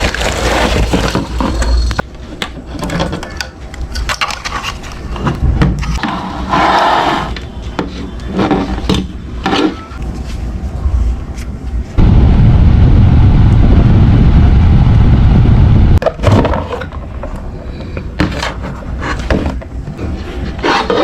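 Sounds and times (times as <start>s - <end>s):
handling clicks knocks and scrapes: 0.0s - 6.2s
low rumble: 11.9s - 16.0s.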